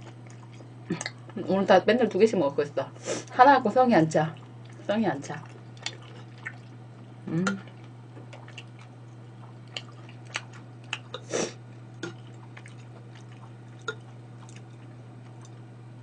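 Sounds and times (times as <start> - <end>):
person chewing food: 0.0 - 1.4, 4.4 - 15.7
steady low hum: 0.0 - 16.0
wet mouth clicks and smacks: 9.7 - 11.3.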